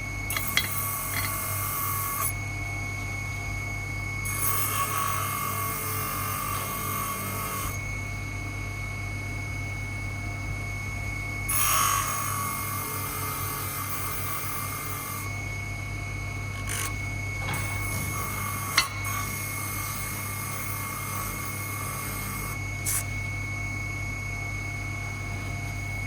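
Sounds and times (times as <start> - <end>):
power tool whining: 0.0 - 2.4, 4.2 - 8.0, 11.5 - 15.6, 16.4 - 23.3.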